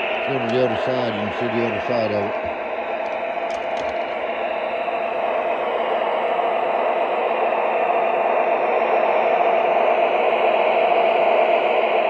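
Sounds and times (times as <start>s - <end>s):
model train motor and track noise: 0.0s - 6.5s
model train engine sound: 0.0s - 12.0s.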